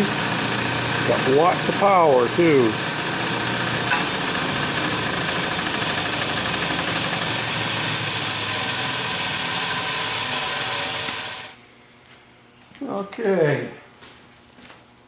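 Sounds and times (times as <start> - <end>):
bench grinder wire wheel running: 0.0 - 11.6.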